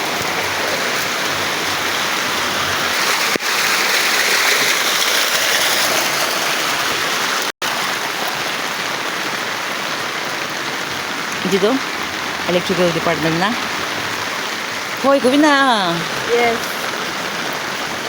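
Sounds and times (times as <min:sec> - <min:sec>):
heavy rain hissing: 0:06.2 - 0:18.0.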